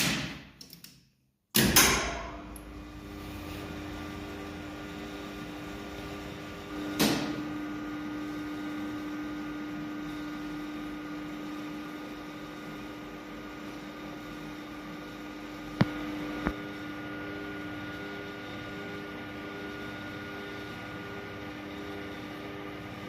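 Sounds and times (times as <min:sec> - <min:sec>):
elevator machine hum: 0:02.2 - 0:09.4.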